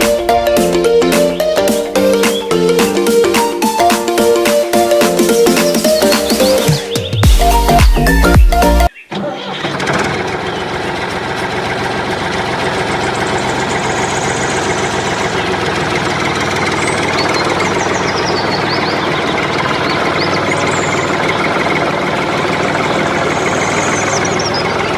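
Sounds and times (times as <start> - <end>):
background music: 0.0 - 8.9
small diesel engine chugging: 0.0 - 24.9.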